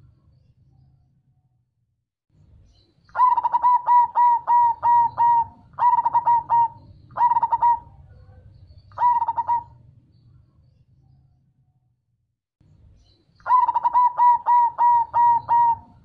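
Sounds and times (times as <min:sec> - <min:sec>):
dove cooing: 0:03.2 - 0:09.9, 0:13.4 - 0:16.0.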